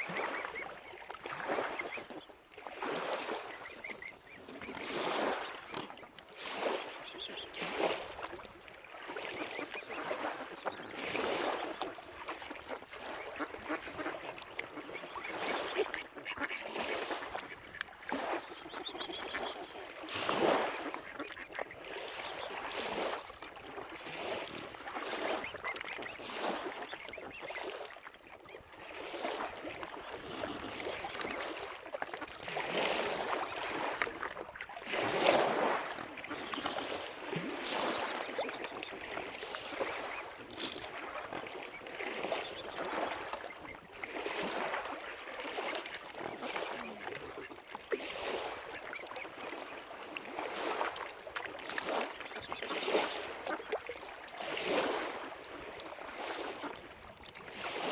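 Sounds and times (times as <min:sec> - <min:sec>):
waterfowl honking and quacking: 0:00.0 - 0:05.9, 0:09.2 - 0:23.2, 0:24.2 - 0:34.5, 0:35.2 - 0:50.9
water lapping: 0:00.0 - 0:57.9.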